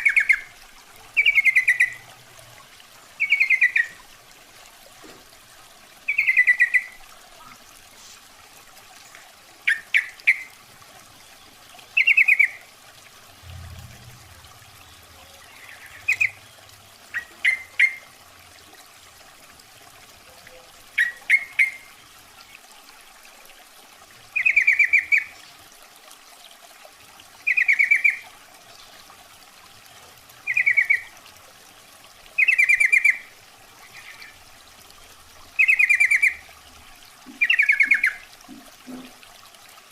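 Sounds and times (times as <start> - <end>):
bird chattering calls: 37.4 - 38.2.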